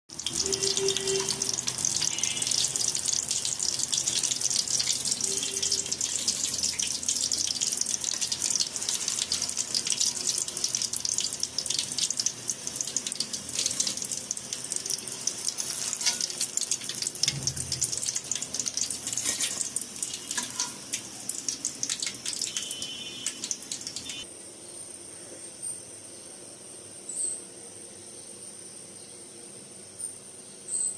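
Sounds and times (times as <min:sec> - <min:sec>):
chicken balls deep-frying in oil: 0:00.1 - 0:24.3.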